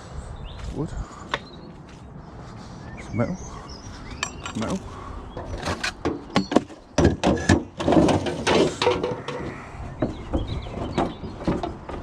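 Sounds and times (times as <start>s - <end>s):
wood and metal clattering: 4.2s - 12.0s.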